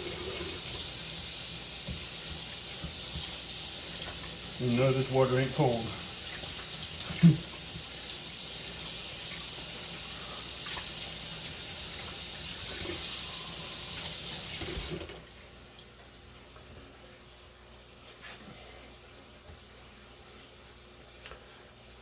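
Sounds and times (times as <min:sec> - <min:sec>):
hands being washed: 0:00.0 - 0:15.2
tap running into a sink: 0:00.1 - 0:04.4, 0:10.6 - 0:15.2.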